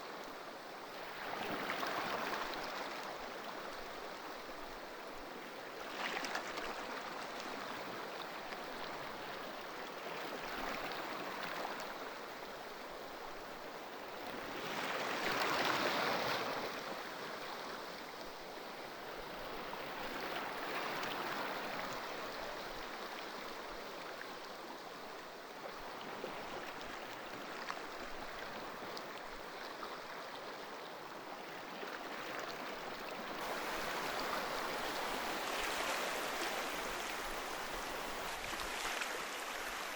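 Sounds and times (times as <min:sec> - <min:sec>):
ocean waves washing: 0:33.2 - 0:39.9
wave breaking: 0:33.4 - 0:39.9.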